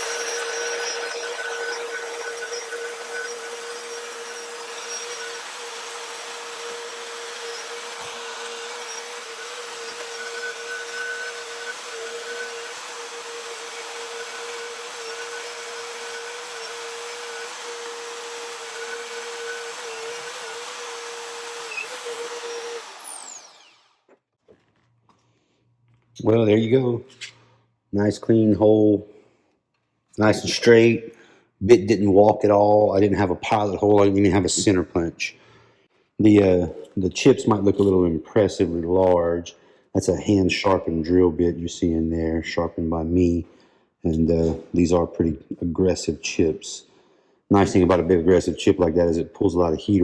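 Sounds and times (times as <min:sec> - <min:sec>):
magnetic drill motor whine: 0:00.0 - 0:24.0
drill bit cutting steel: 0:00.0 - 0:24.1.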